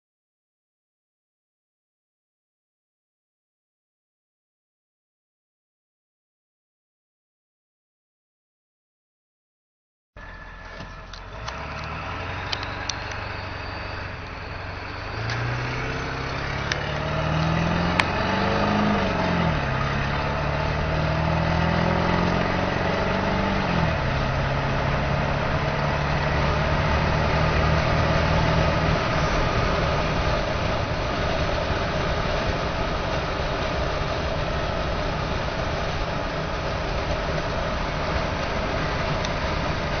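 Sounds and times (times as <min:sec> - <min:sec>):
diesel truck engine accelerating: 0:10.2 - 0:40.0
road and wind noise: 0:10.2 - 0:40.0.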